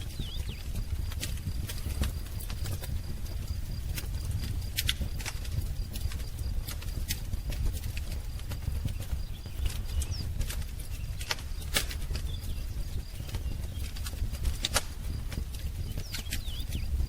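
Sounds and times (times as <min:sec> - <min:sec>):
faint bird chirps: 0:00.0 - 0:00.8, 0:08.6 - 0:17.0
wood fire crackling: 0:00.0 - 0:17.0.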